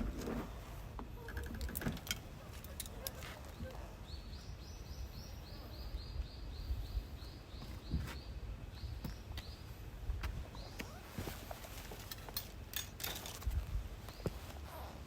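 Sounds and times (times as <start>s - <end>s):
small bird chirping: 2.5s - 9.8s, 10.4s - 11.8s.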